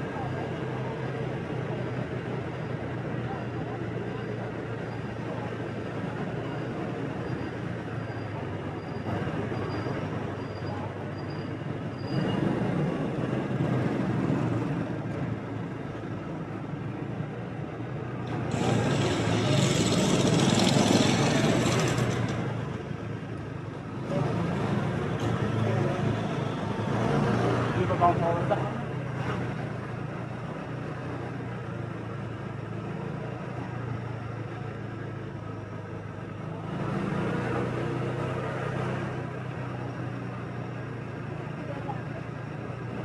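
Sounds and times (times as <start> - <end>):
passing traffic rush: 0.0 - 43.0
motorbike engine: 18.3 - 23.0.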